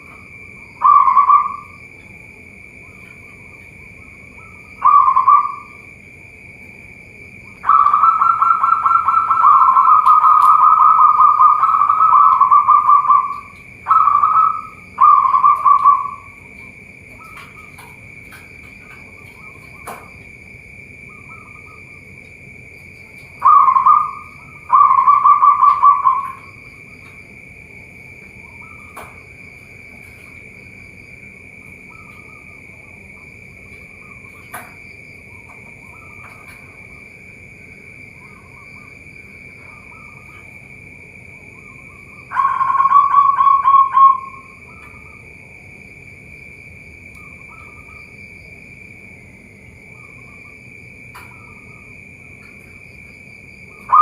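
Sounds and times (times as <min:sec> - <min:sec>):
high-pitched drone: 0:00.0 - 0:01.9, 0:02.8 - 0:05.9, 0:07.5 - 0:16.7, 0:23.4 - 0:26.8, 0:41.4 - 0:45.2
doves cooing: 0:00.0 - 0:45.6, 0:47.2 - 0:48.3, 0:49.4 - 0:54.0.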